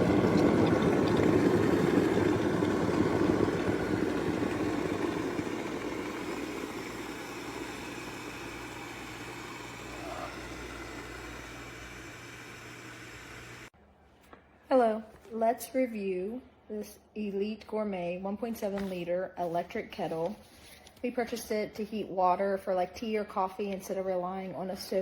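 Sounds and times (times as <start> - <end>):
kettle water boiling: 0.0 - 13.7.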